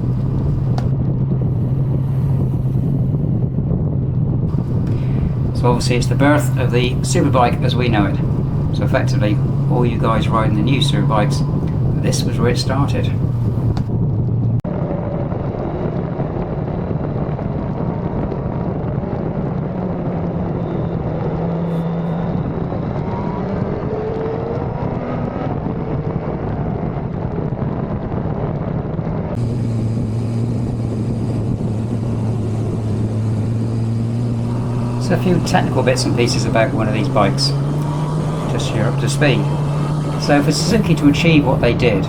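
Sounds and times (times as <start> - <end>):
motorcycle engine running: 0.0 - 3.6, 4.5 - 13.9, 29.4 - 42.0
wind and road noise: 0.0 - 42.0.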